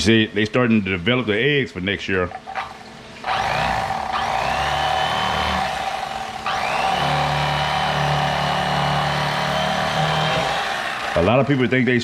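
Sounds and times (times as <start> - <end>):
electric knife motor whine: 2.6 - 11.6.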